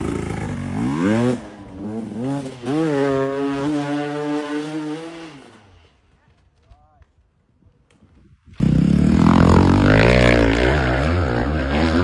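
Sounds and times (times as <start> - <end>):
motocross bike engine revving: 0.0 - 5.6, 8.6 - 12.0.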